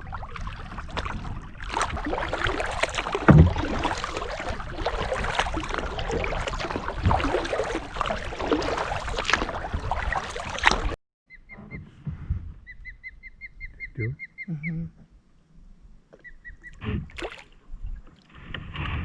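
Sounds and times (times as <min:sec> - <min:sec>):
paddle splashing water: 0:00.0 - 0:11.0, 0:16.2 - 0:19.0
bird chirping: 0:11.3 - 0:11.9, 0:12.6 - 0:14.8, 0:16.2 - 0:16.8.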